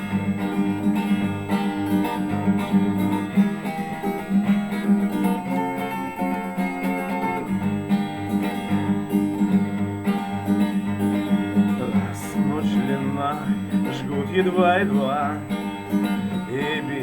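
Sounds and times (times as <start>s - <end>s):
acoustic guitar strumming: 0.0s - 17.0s
person singing: 11.7s - 15.5s, 16.3s - 17.0s.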